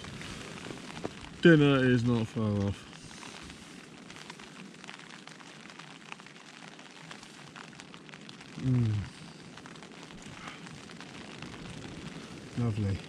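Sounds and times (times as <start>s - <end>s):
rain hissing: 0.0s - 13.0s
small crackling ticks: 0.0s - 13.0s
man's brief vocal sound: 8.6s - 9.1s.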